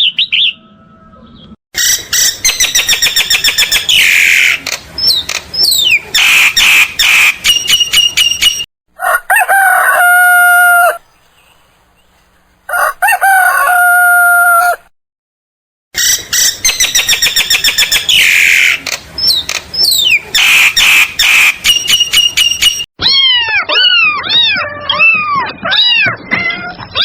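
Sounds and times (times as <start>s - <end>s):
chickens clucking and squawking: 9.0s - 11.0s, 12.7s - 14.9s
rooster crowing: 9.0s - 11.0s, 12.7s - 14.9s.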